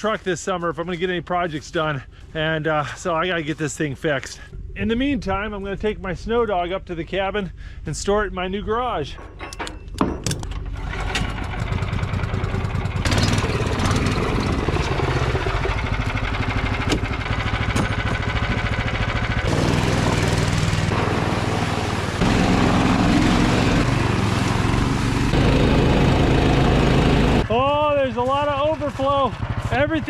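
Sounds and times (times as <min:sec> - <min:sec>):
small snow machine engine running: 0:10.8 - 0:30.0.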